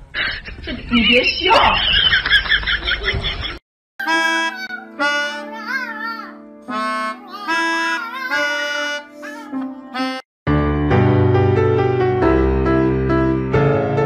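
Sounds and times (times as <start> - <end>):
harmonica playing: 4.0 - 10.3.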